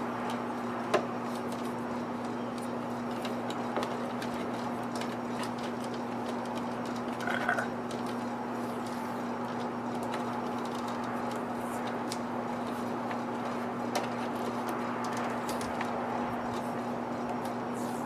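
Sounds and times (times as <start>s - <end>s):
steady low hum: 7.0s - 18.0s.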